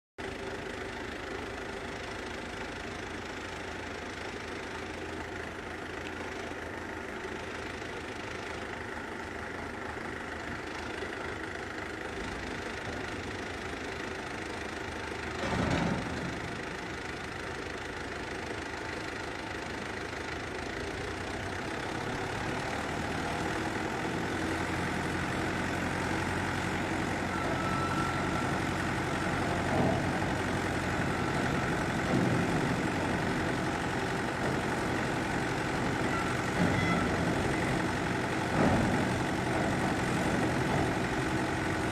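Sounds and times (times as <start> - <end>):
tractor diesel engine running: 0.2 - 41.9
clunk: 15.3 - 16.6, 36.0 - 37.8, 38.5 - 39.3.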